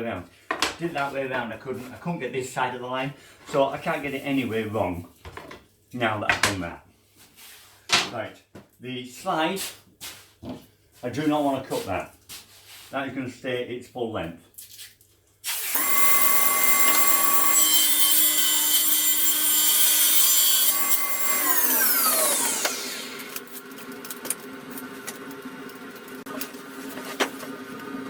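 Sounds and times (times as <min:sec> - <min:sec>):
electric power saw cutting wood: 0:15.5 - 0:28.0.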